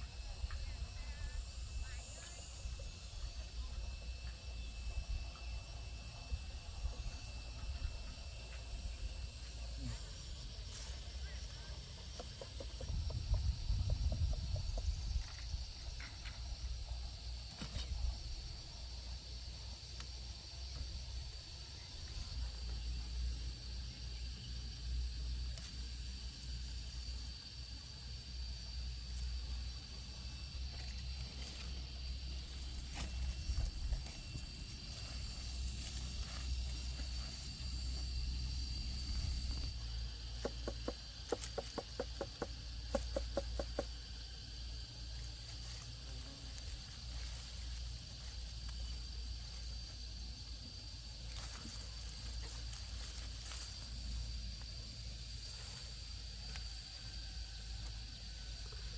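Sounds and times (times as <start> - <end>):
insects droning: 0.0 - 58.9.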